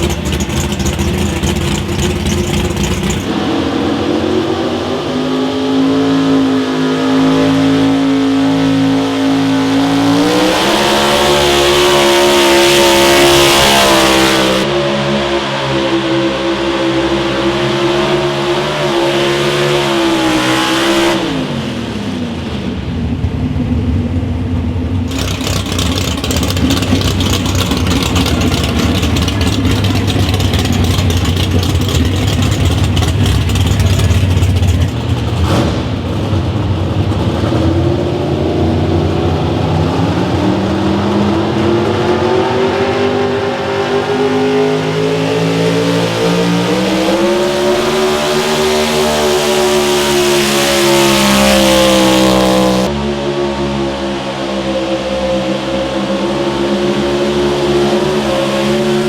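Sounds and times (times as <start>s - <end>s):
engine running hard and crackling: 0.0s - 5.4s, 19.7s - 59.0s.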